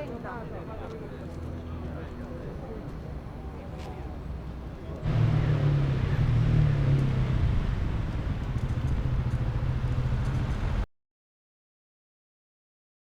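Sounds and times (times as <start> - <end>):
vehicle engine humming: 5.0 - 10.9.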